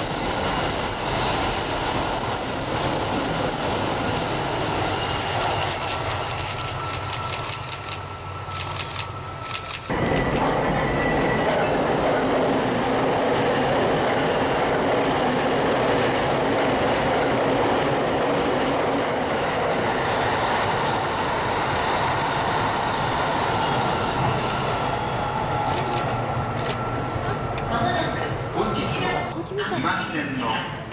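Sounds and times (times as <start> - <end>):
train wheels clicking over rails: 0.0 - 10.6
train wheel and rail rush: 0.0 - 30.9.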